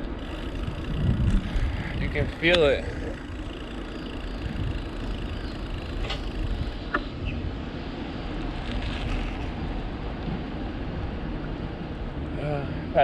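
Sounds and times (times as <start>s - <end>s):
wind buffeting microphone: 0.0s - 12.3s
faint ticks: 0.2s - 7.0s.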